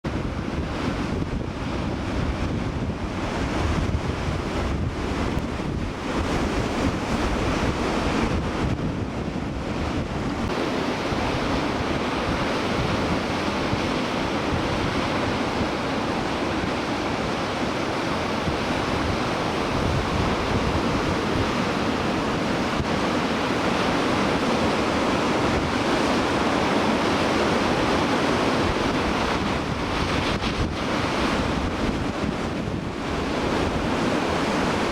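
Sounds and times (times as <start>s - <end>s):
ocean surf breaking: 0.1s - 34.9s
wind buffeting microphone: 0.1s - 34.9s.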